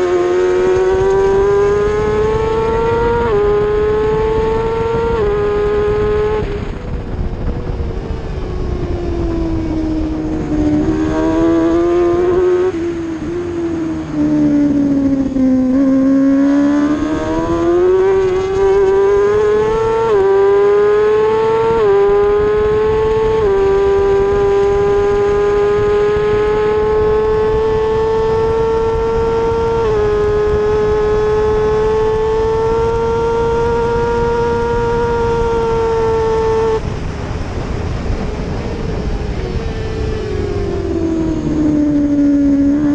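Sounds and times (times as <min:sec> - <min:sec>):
racing motorcycle engine revving: 0:00.0 - 0:42.9.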